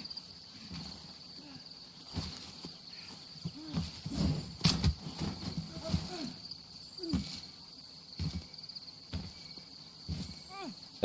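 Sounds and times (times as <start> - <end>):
night insects chirring: 0.0 - 11.0
thuds: 3.4 - 6.4, 8.2 - 10.7.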